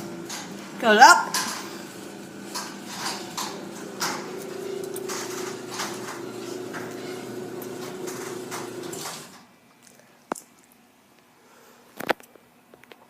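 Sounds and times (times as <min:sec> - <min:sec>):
garage door motor humming: 0:00.0 - 0:09.5
door clacking and rattling: 0:01.3 - 0:09.4.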